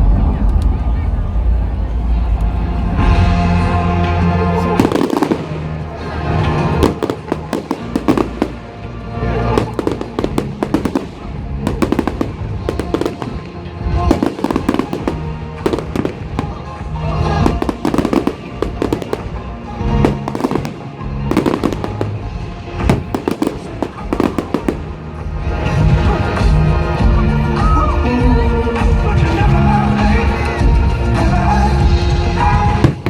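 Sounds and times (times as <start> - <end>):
fireworks bangs and crackling: 0.0 - 33.0
music playing: 0.0 - 33.0.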